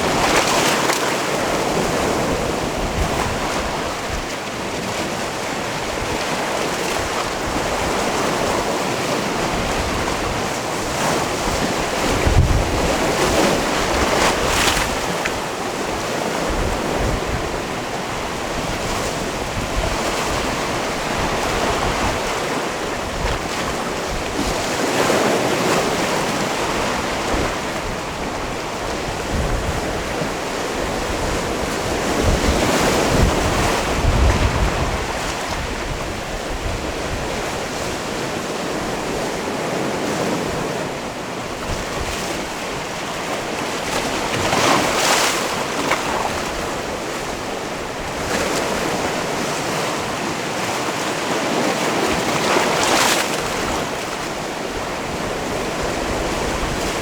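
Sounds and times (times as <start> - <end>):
sea waves against rocky shore: 0.0 - 57.0.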